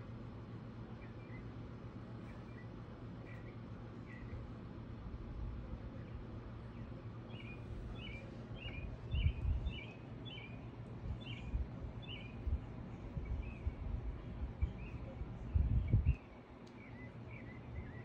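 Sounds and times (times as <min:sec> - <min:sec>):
low background rumble: 0:00.0 - 0:18.0
small bird chirping: 0:02.2 - 0:04.5, 0:07.3 - 0:12.6, 0:13.2 - 0:18.0.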